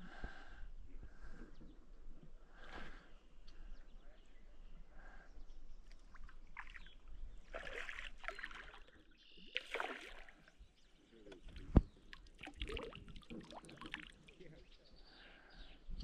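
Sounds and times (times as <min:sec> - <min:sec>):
water splashing and sloshing: 0:05.9 - 0:10.6, 0:11.3 - 0:14.5.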